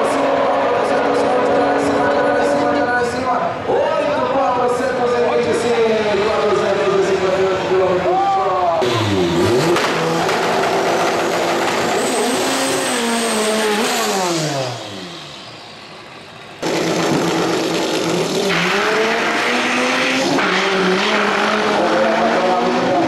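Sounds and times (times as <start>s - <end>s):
car engine at full throttle: 0.0s - 3.1s, 8.7s - 23.0s.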